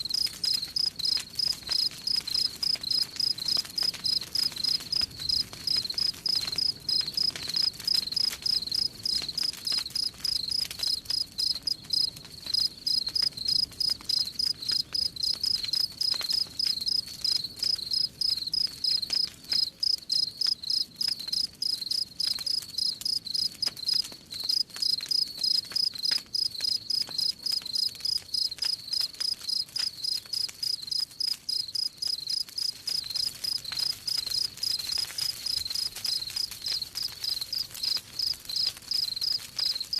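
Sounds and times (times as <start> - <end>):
faint fire crackling: 0.0 - 39.9
crickets chirping: 0.5 - 7.3, 10.0 - 18.6, 19.6 - 22.0, 27.8 - 34.8.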